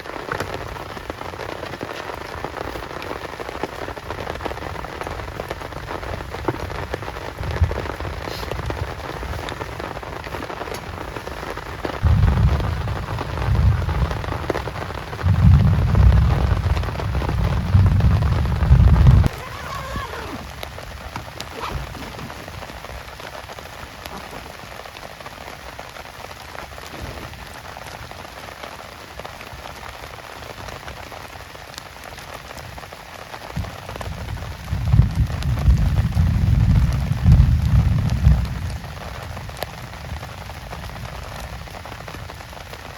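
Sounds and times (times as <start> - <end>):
heavy rain falling: 0.0 - 42.9
low rumble: 15.2 - 19.4.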